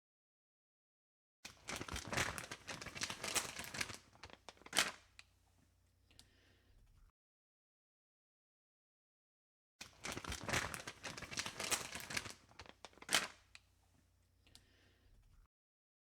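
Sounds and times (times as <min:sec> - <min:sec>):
crinkling and crackling: 0:01.5 - 0:05.3, 0:09.8 - 0:13.6.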